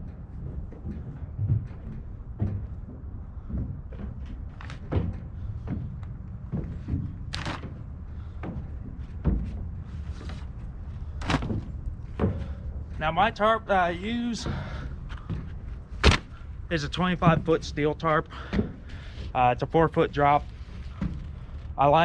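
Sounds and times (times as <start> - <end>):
steady low rumble: 0.0 - 22.0
knocks and thumps of tarp: 6.8 - 7.8, 11.1 - 12.5, 15.9 - 16.4.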